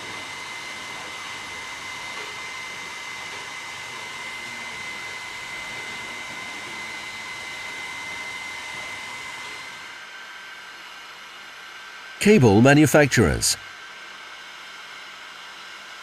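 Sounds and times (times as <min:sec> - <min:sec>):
hot air tool blowing: 0:00.0 - 0:11.8.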